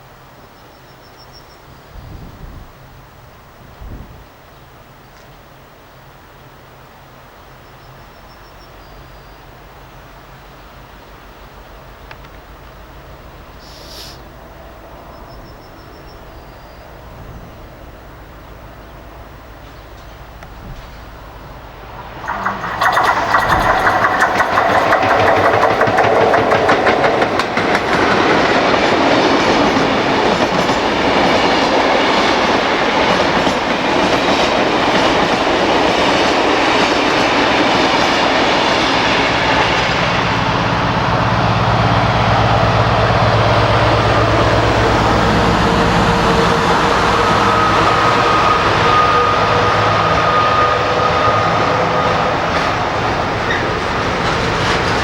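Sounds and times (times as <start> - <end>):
train wheels clattering: 19.6 - 41.8, 43.4 - 55.0.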